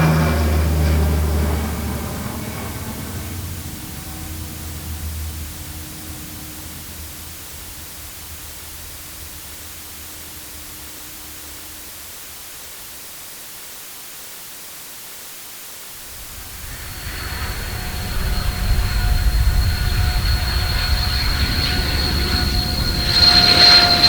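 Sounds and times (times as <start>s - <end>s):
jet engine high whine: 0.0s - 12.8s, 16.0s - 24.0s
jet airliner hiss and rumble: 0.0s - 13.4s, 15.9s - 24.0s.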